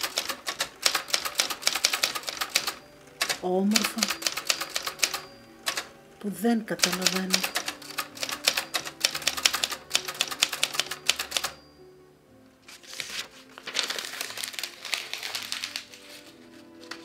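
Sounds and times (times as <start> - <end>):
typewriter keys clacking: 0.0 - 5.9, 6.8 - 11.6
soft sustained music: 0.0 - 17.0.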